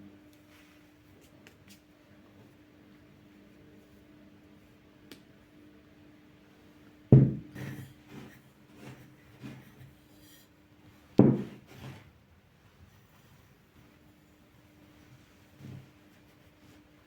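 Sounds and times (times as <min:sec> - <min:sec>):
faint steady hum: 0:00.0 - 0:17.0
items rubbing and moving: 0:07.5 - 0:10.5, 0:11.4 - 0:12.2.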